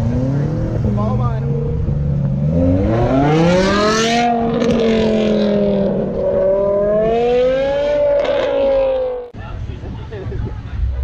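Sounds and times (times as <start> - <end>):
car engine accelerating: 0.0 - 9.4.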